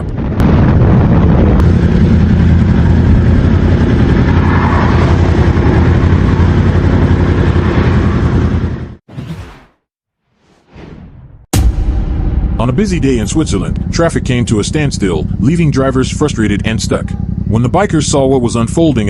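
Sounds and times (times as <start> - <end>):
wind rumble: 0.0 - 9.0, 11.6 - 18.7
motorcycle engine: 1.5 - 9.0, 12.4 - 19.0.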